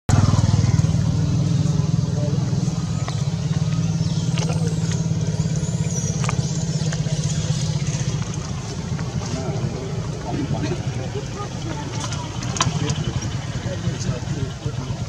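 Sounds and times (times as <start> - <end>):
engine running with low hum: 0.1 - 15.0.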